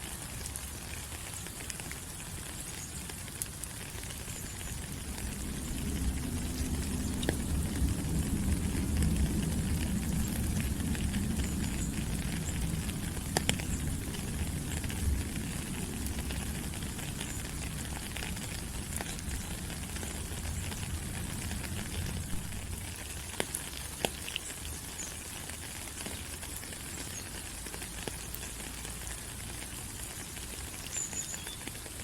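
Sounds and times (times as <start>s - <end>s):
rain falling on leaves: 0.0s - 32.0s.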